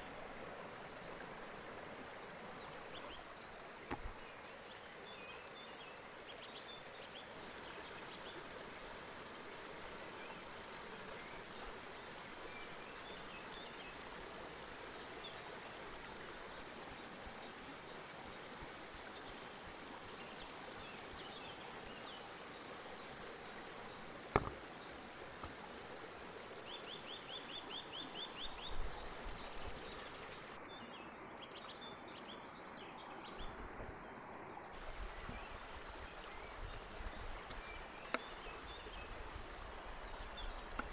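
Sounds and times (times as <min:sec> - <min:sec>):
creek water running: 0:00.0 - 0:40.9
birds chirping: 0:20.9 - 0:25.8, 0:26.4 - 0:33.9, 0:34.6 - 0:40.9.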